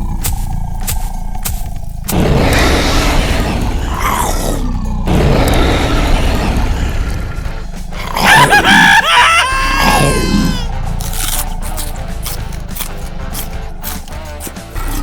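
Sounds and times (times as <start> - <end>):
cartoon-style scream: 8.0 - 10.7
upbeat background music: 9.6 - 15.0.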